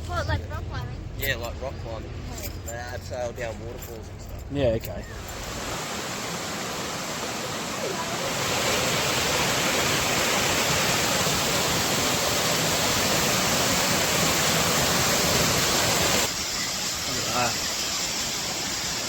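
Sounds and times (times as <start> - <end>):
waterfall rushing: 5.2 - 19.0.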